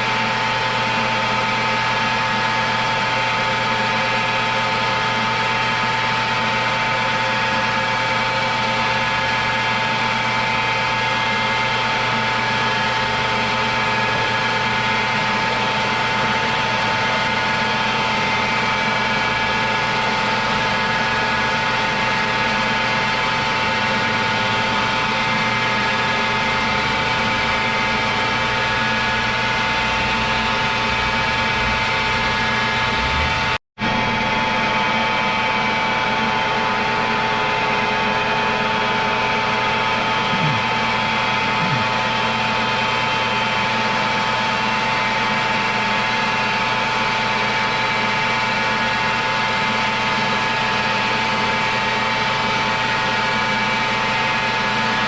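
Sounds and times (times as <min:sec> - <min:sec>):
machine tool motor humming: 0:40.2 - 0:42.0.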